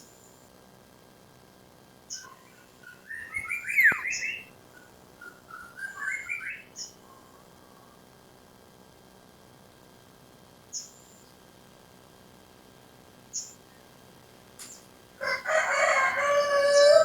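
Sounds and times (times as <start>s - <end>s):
bird chirping song: 2.1s - 7.0s, 13.3s - 13.6s.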